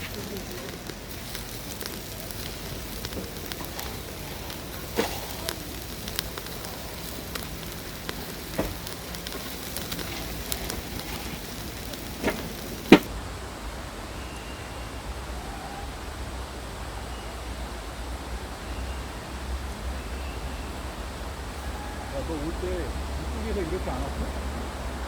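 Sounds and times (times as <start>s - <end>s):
cooking crackling and sizzling: 0.0s - 13.2s, 21.5s - 25.0s.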